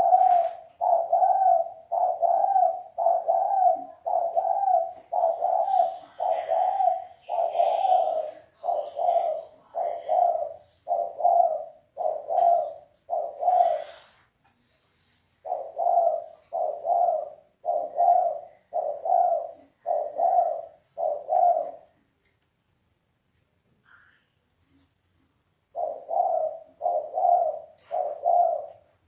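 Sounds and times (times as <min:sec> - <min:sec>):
dove cooing: 0:00.0 - 0:14.2, 0:15.4 - 0:22.0, 0:25.7 - 0:29.0.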